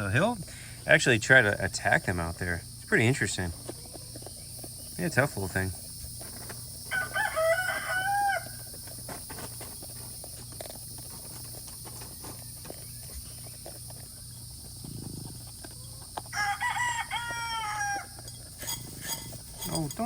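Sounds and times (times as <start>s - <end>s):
insects droning: 0.0s - 20.0s
rooster crowing: 6.9s - 8.7s, 16.3s - 18.2s.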